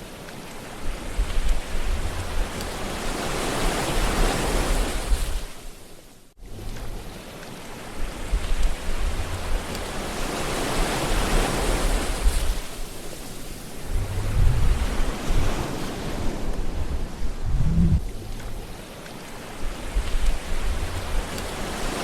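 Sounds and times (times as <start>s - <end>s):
low rumbles of surf: 0.0s - 5.7s, 6.4s - 22.0s
waves washing in: 0.0s - 22.0s.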